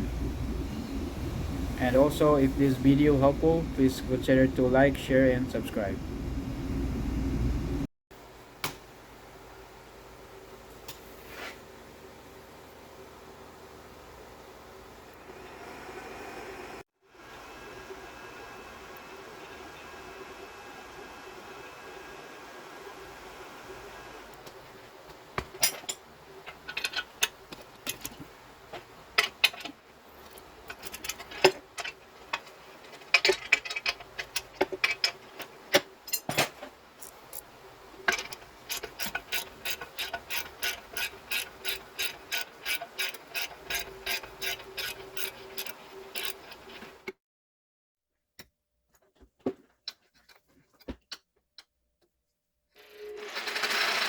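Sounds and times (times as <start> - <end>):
ratchet wrench clicking: 38.2 - 46.5.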